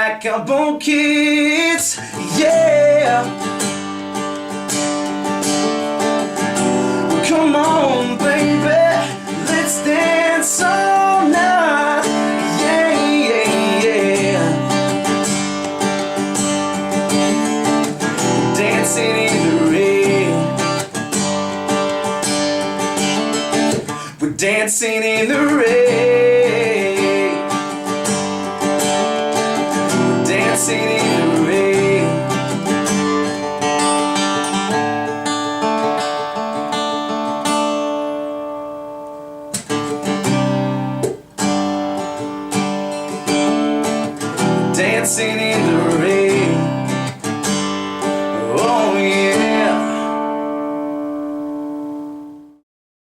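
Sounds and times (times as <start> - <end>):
acoustic guitar strumming: 0.0 - 52.6.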